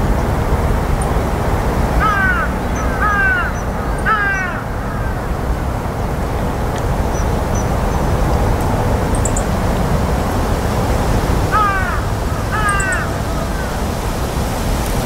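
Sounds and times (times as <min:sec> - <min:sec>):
bird harsh arching calls: 0:02.0 - 0:05.0, 0:11.5 - 0:13.8.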